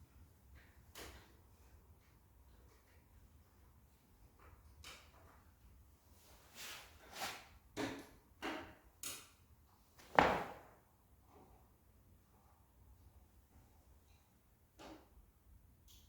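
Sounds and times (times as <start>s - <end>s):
loud thump: 10.1s - 10.6s.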